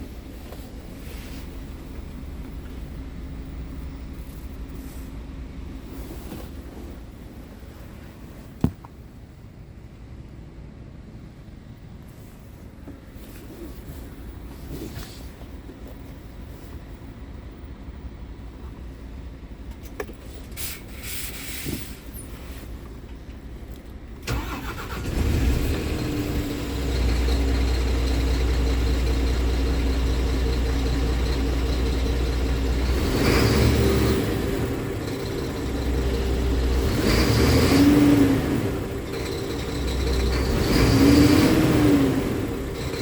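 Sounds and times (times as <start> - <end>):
diesel engine idling: 0.0 - 12.4, 23.4 - 43.0
diesel engine starting: 24.2 - 43.0.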